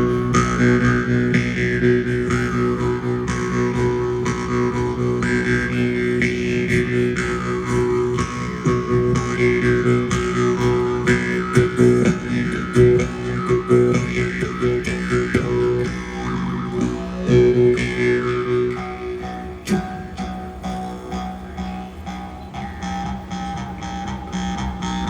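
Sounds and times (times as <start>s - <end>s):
didgeridoo drone: 0.0s - 25.0s
jaw harp: 0.0s - 25.0s.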